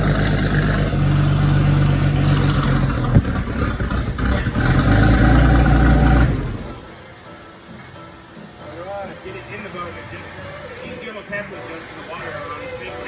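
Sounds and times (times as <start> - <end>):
boat engine running: 0.0 - 6.9.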